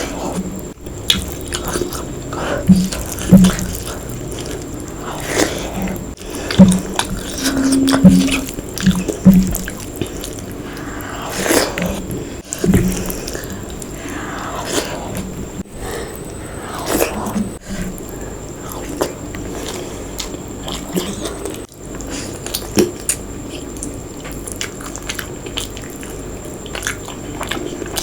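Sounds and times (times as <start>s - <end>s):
wet chewing mouth sounds: 0.0s - 7.2s, 18.7s - 28.0s.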